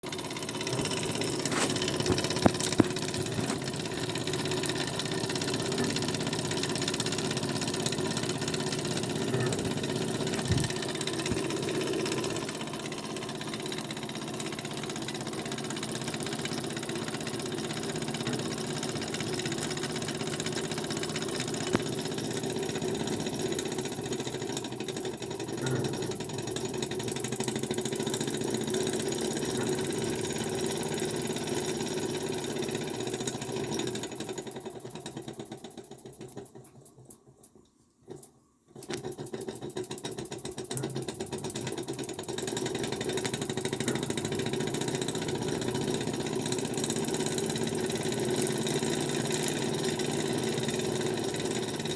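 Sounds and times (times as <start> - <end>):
toy steam engine chatter: 0.0 - 37.1, 38.8 - 51.9
sharp clicks: 0.7 - 4.0.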